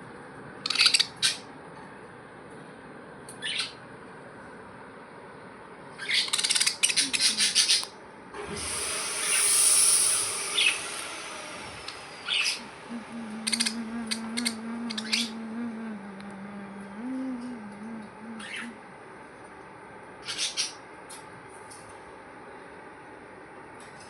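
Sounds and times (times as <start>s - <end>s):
budgerigars chattering: 6.0s - 7.8s
steady low hum: 6.8s - 20.2s
hiss: 8.4s - 13.8s.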